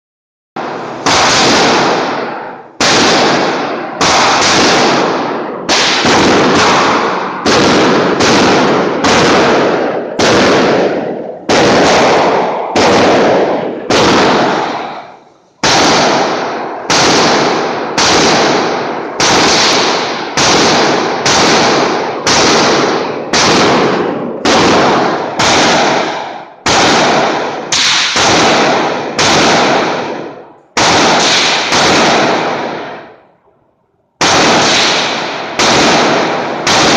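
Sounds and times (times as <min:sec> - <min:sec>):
rifle shots echoing: 0:00.6 - 0:33.4, 0:34.2 - 0:36.9.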